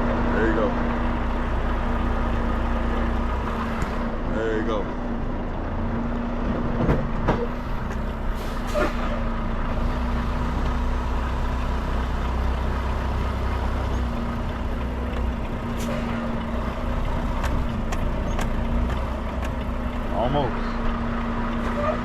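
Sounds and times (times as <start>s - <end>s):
diesel truck engine running: 0.0s - 22.0s
short air hisses: 8.3s - 9.1s.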